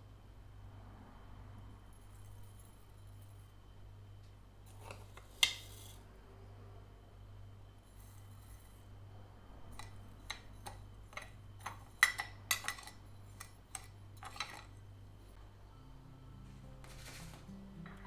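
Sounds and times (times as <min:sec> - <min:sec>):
steady low hum: 0:06.0 - 0:18.0.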